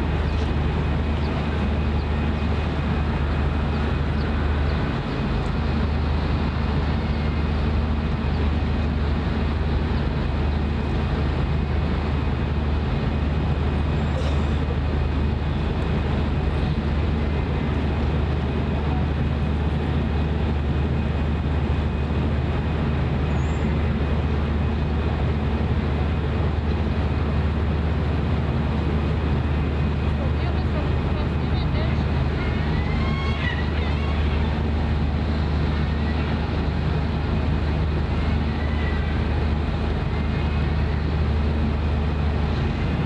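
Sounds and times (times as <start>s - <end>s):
low engine drone: 0.0s - 43.0s
traffic noise: 0.0s - 43.0s.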